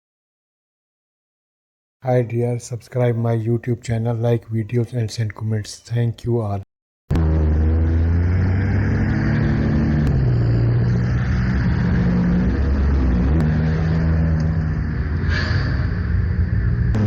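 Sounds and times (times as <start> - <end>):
car engines running: 7.1 - 17.0.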